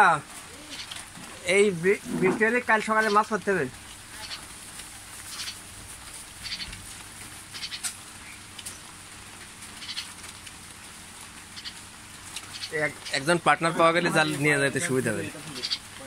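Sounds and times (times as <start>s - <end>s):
bird raspy high calls: 0.5s - 1.0s, 4.1s - 4.5s, 5.3s - 5.7s, 6.4s - 6.7s, 7.5s - 8.8s, 9.7s - 10.2s, 11.5s - 13.3s, 15.4s - 16.0s.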